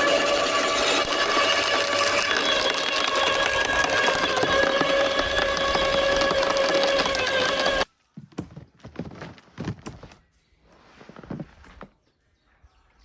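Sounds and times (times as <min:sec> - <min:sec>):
power tool motor whining: 0:00.0 - 0:07.9
irregular knocks: 0:02.2 - 0:10.2
rustling: 0:02.2 - 0:12.0.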